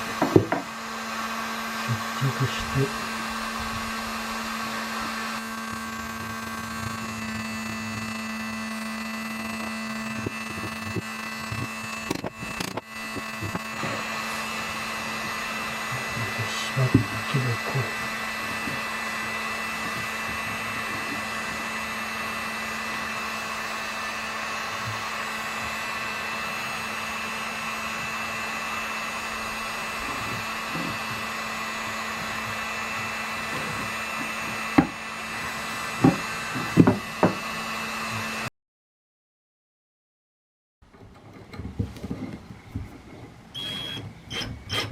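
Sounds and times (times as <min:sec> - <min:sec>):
electric fan motor whirring: 0:00.0 - 0:38.5, 0:41.5 - 0:44.9
sharp knocks of wood or tools: 0:00.1 - 0:00.7, 0:34.8 - 0:35.0, 0:36.0 - 0:37.4.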